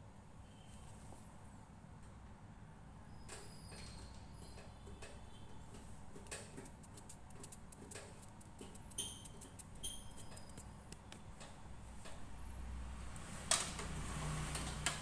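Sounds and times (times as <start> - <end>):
tools clicking and tapping: 4.5 - 12.2.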